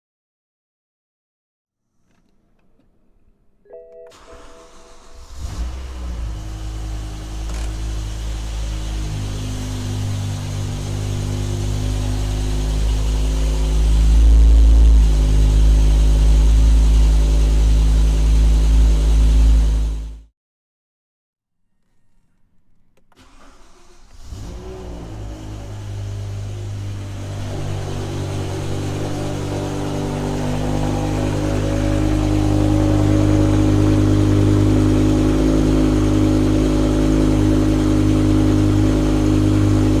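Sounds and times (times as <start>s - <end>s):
car engine idling: 4.2s - 20.2s, 23.2s - 40.0s.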